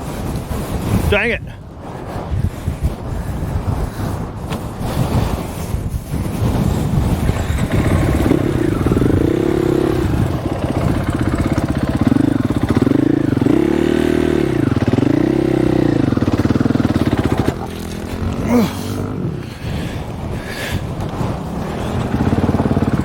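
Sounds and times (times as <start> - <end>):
dirt bike engine revving: 7.0 - 23.0.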